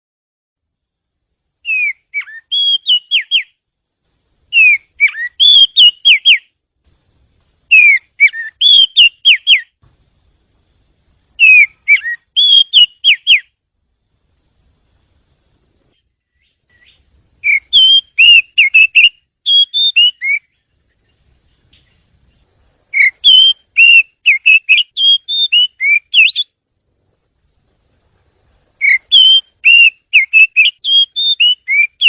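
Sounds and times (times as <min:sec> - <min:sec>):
bird singing whistled phrases: 0:01.6 - 0:03.6, 0:04.5 - 0:06.5, 0:07.7 - 0:09.8, 0:11.4 - 0:13.6, 0:16.3 - 0:20.6, 0:22.9 - 0:26.6, 0:28.8 - 0:32.0.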